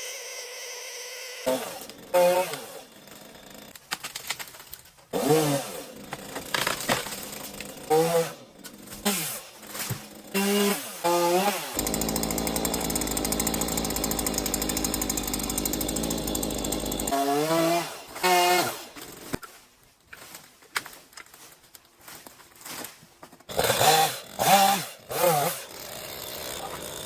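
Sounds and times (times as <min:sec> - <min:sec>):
chainsaw running at high speed: 0:10.3 - 0:18.8, 0:23.6 - 0:27.0.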